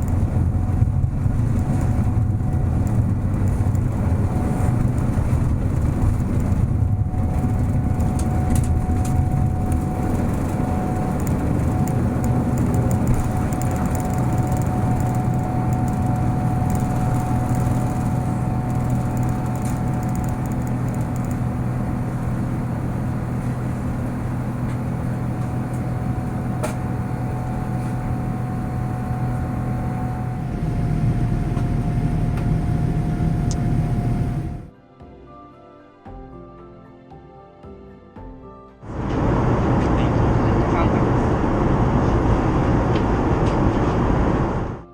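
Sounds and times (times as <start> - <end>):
airliner cabin drone: 0.0 - 34.7, 38.8 - 44.9
faint steady whine: 0.0 - 34.7, 38.9 - 44.9.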